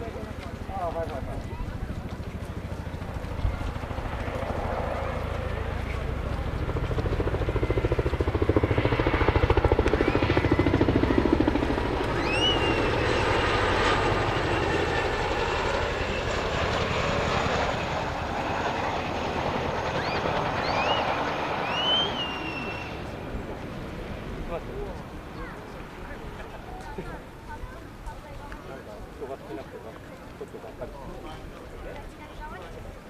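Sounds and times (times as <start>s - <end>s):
turbine engine sound: 0.0s - 25.9s
helicopter rotor thumping: 0.1s - 21.2s.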